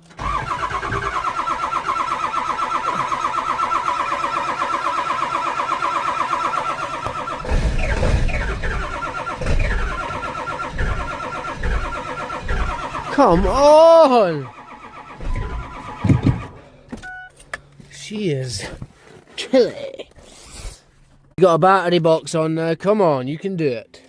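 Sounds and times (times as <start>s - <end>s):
starter motor cranking: 0.0s - 16.7s
diesel engine firing bursts: 0.0s - 16.9s.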